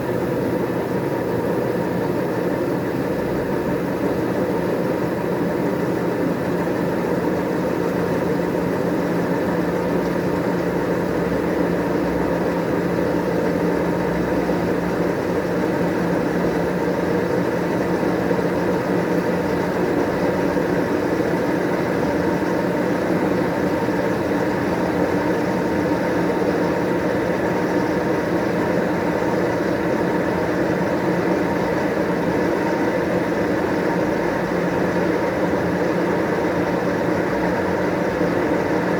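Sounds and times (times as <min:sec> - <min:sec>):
washing machine spin cycle hum: 0:00.0 - 0:38.9.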